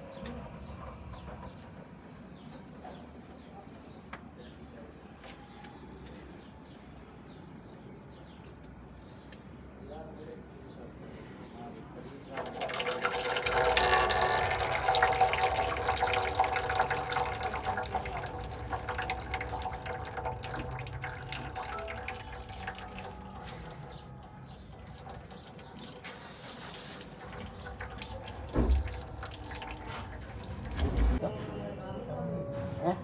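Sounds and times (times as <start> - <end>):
liquid pouring: 12.4 - 31.2.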